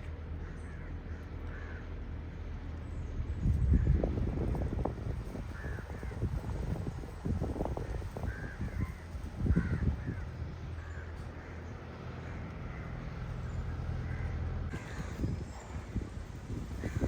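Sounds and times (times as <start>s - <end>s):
crows cawing: 0.4s - 2.0s, 5.5s - 6.2s, 8.3s - 13.0s, 14.0s - 15.3s, 16.7s - 17.0s
wind gusts on microphone: 3.2s - 10.9s, 14.7s - 17.0s.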